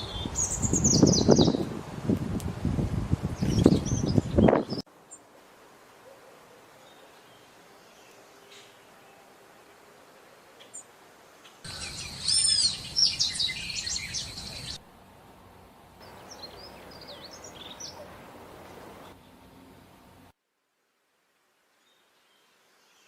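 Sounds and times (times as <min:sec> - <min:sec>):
songbirds chirping and whistling: 0:00.0 - 0:01.7, 0:10.6 - 0:14.8, 0:16.0 - 0:18.1.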